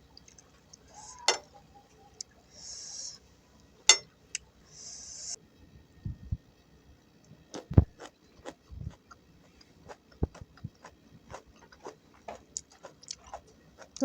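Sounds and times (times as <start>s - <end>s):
chewing with wet mouth clicks: 7.5s - 14.0s.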